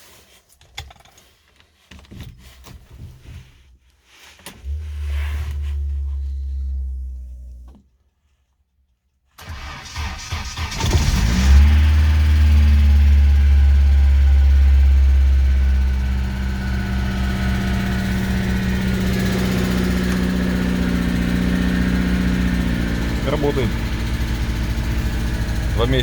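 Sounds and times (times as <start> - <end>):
car engine cranking and idling: 9.4 - 26.0
low drone: 12.1 - 26.0.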